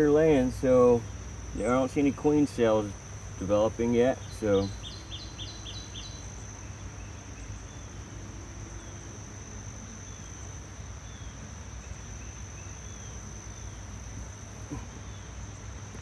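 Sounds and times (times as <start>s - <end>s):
insects whining: 0.0s - 16.0s
faint bird chirps: 4.2s - 7.9s.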